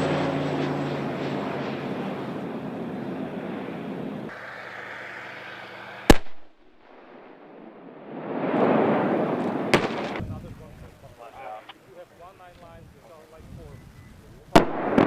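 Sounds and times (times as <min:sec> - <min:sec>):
aircraft engine drone: 0:00.0 - 0:14.5
rushing noise: 0:04.3 - 0:10.7
loud gunfire bang: 0:06.1 - 0:07.5, 0:08.1 - 0:10.4, 0:14.6 - 0:15.0.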